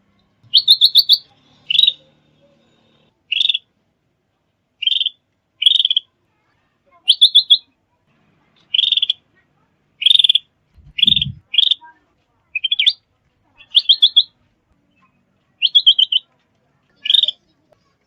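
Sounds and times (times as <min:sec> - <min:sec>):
songbird calling: 0:00.5 - 0:02.0, 0:04.8 - 0:06.1, 0:07.1 - 0:07.7, 0:08.7 - 0:09.2, 0:10.0 - 0:11.8, 0:12.6 - 0:13.0, 0:13.6 - 0:14.3, 0:15.6 - 0:16.3, 0:17.0 - 0:17.4.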